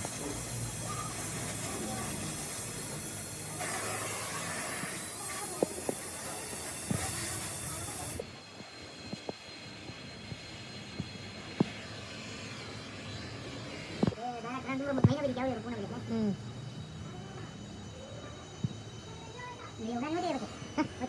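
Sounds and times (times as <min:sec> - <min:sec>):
steady hiss: 0:00.0 - 0:14.6.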